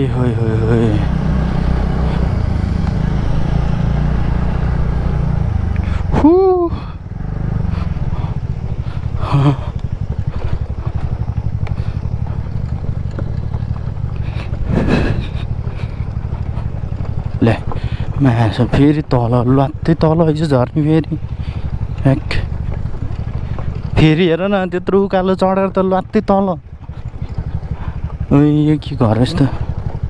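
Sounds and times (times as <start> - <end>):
scooter engine running: 0.0 - 30.0
person shouting: 5.9 - 7.0.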